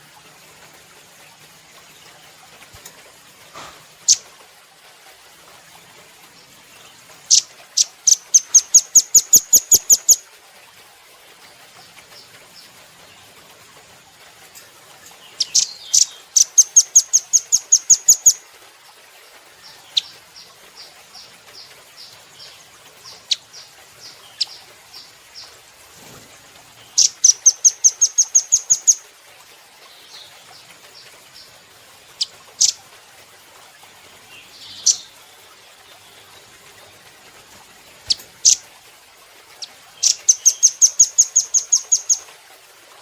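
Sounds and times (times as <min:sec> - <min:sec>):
bird trilling: 0:07.3 - 0:10.2, 0:15.4 - 0:18.4, 0:27.0 - 0:29.0, 0:40.0 - 0:42.2.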